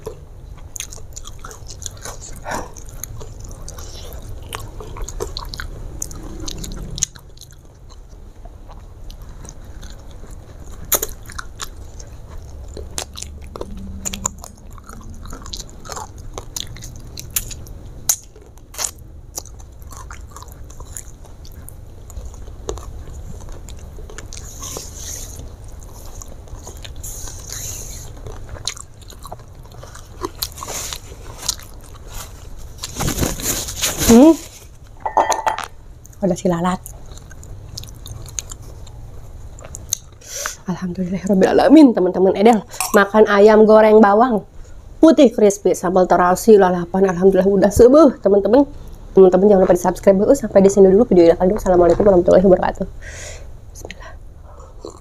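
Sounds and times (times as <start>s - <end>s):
person chewing crunchy food: 0.0s - 36.2s, 36.8s - 40.6s, 54.5s - 55.0s
wet mouth clicks: 5.1s - 7.6s.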